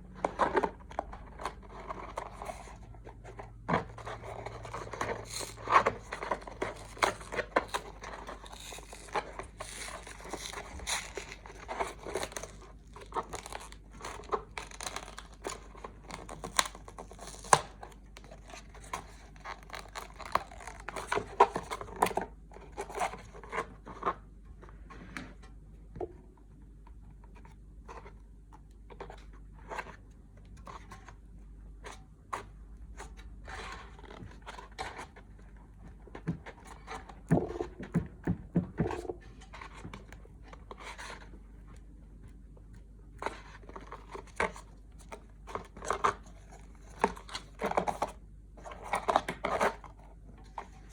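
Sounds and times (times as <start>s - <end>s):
tearing and scraping: 3.9s - 22.1s.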